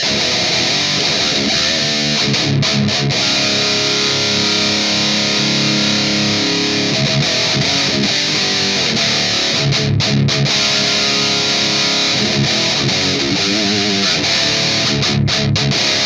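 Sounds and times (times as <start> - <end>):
distorted electric guitar riff: 0.0 - 16.0.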